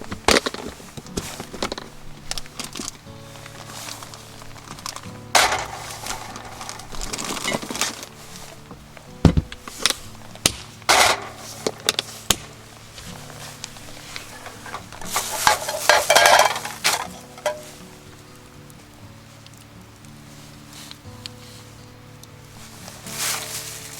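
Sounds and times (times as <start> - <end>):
cooking gear clattering: 0.0 - 18.0
rustling: 0.0 - 23.9
soft background music: 0.0 - 23.9
heavy thump: 8.7 - 9.6.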